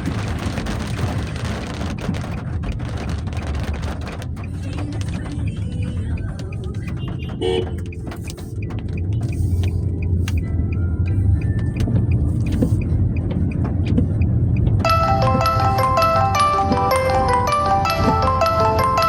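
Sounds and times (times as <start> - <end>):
car engine and tyres rumbling: 0.0 - 19.0
sharp ticks: 0.4 - 18.9
mallet percussion music: 14.8 - 19.0.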